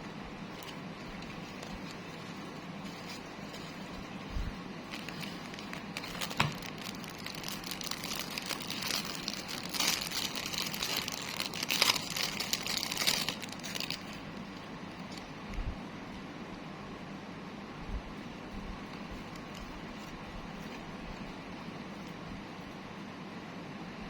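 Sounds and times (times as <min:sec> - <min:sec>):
plastic packaging crinkling: 0:00.0 - 0:15.3, 0:19.0 - 0:21.4.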